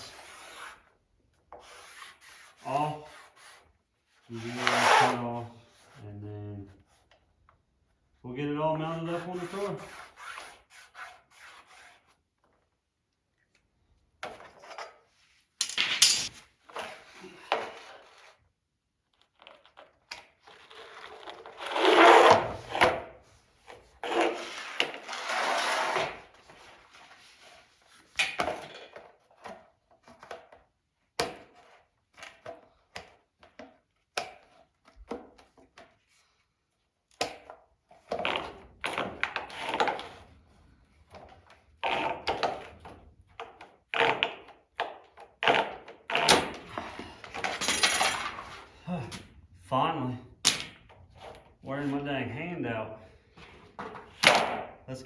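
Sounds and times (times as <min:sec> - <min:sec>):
hand saw rasping on plastic: 0:09.0 - 0:12.2, 0:41.8 - 0:42.8, 0:43.6 - 0:46.7.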